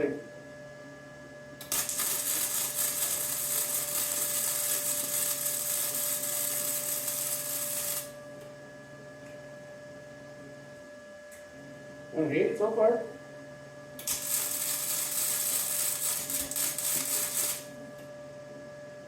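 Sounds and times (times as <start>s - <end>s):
workshop tool hissing: 1.6s - 8.1s, 14.0s - 17.7s.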